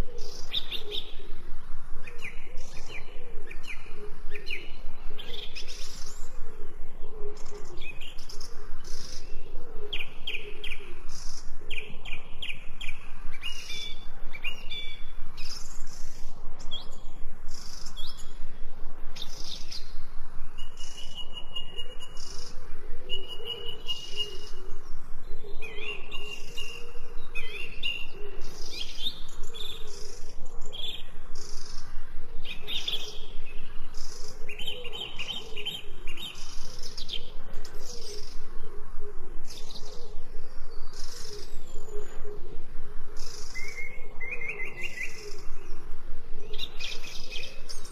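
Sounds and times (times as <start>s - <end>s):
wild birds chirping and singing: 0.0s - 47.9s
whistled bird notes: 19.2s - 24.6s.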